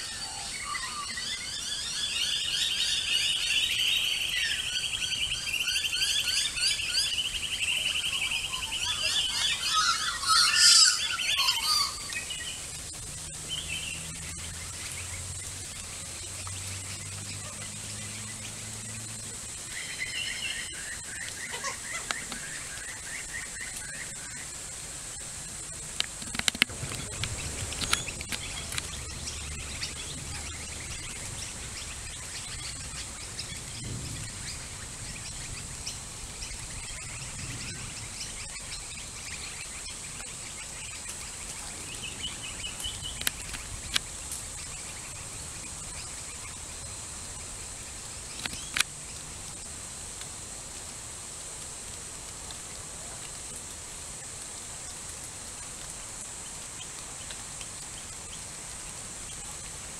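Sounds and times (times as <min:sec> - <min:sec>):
birds calling: 0:00.0 - 0:49.7
steady high hiss: 0:00.0 - 0:59.9
low rumbles: 0:24.5 - 0:48.3
sharp clicks: 0:25.9 - 0:29.0.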